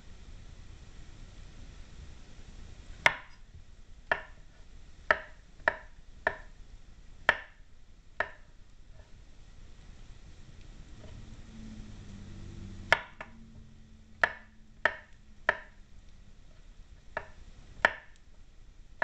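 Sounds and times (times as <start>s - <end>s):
knife chopping on cutting board: 3.0s - 3.4s, 4.1s - 4.5s, 5.1s - 6.5s, 7.3s - 7.6s, 8.2s - 9.1s, 12.9s - 13.3s, 14.2s - 15.8s, 17.2s - 18.2s.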